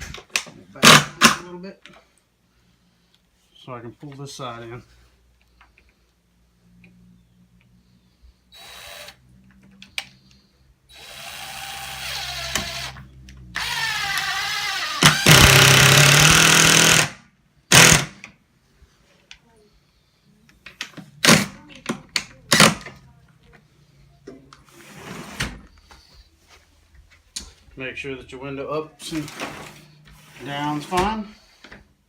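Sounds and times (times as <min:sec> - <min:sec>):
power drill driving screws: 0:08.5 - 0:09.2, 0:10.9 - 0:13.0, 0:13.6 - 0:18.2.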